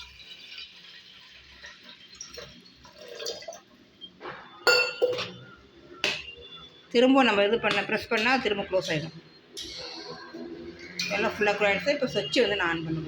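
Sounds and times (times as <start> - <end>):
water pouring into kettle: 0.0 - 4.0.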